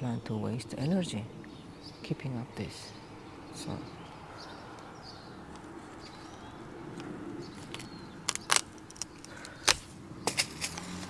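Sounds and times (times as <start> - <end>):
snaps of plant being cut: 7.6 - 11.0.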